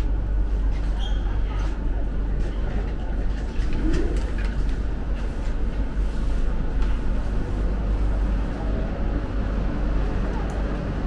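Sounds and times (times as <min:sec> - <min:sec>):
standing train rumble and hum: 0:00.0 - 0:11.0
passengers' footsteps and knocks: 0:00.1 - 0:07.5.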